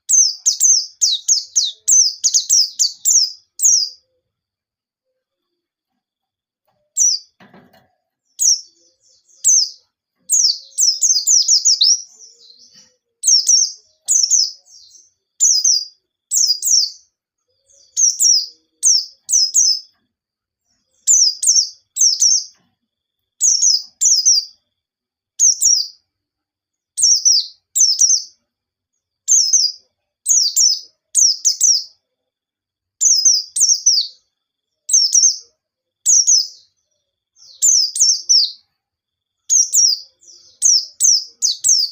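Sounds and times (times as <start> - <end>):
bird singing high rapid phrases: 0.0 - 4.1, 6.9 - 7.4, 8.3 - 20.0, 20.7 - 22.6, 23.4 - 24.6, 25.4 - 26.0, 26.9 - 28.4, 29.2 - 32.0, 33.0 - 34.3, 34.9 - 35.5, 36.1 - 38.7, 39.4 - 41.9.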